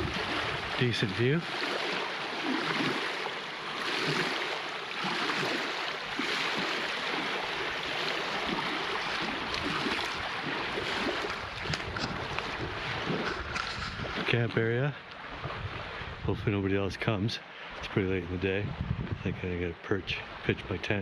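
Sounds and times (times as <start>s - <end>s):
small waves on shore: 0.0s - 16.3s
wind: 0.0s - 21.0s.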